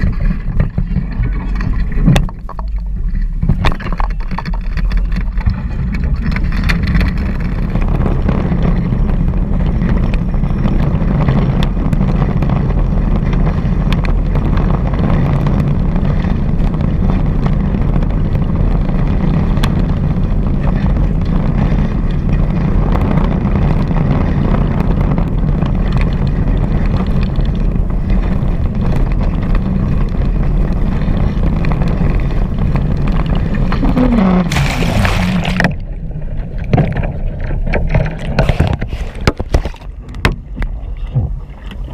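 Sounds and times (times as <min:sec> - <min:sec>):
rushing water: 0:00.0 - 0:09.0, 0:30.9 - 0:41.9
wind rumble on microphone: 0:00.0 - 0:41.9.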